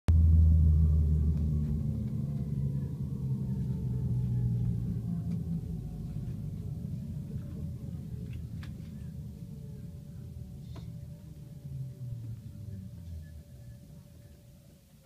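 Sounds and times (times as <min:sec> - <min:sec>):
train running rumble: 0:00.1 - 0:15.0.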